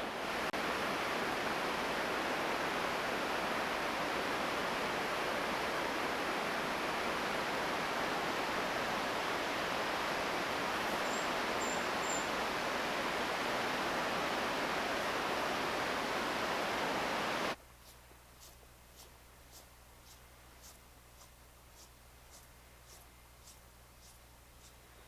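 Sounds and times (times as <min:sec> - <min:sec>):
waterfall rushing: 0:00.0 - 0:17.6.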